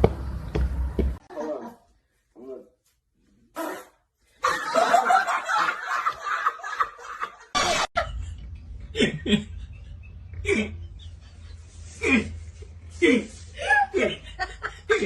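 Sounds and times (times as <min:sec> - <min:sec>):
steady low hum: 0:08.0 - 0:15.0
person laughing hard: 0:08.9 - 0:12.4.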